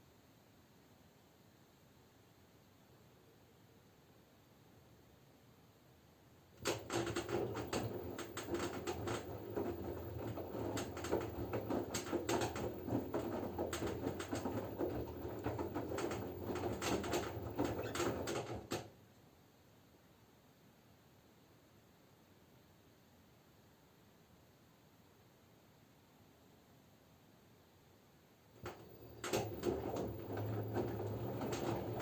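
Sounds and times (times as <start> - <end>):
washing machine drum tumbling laundry: 6.6 - 18.9, 28.6 - 32.0.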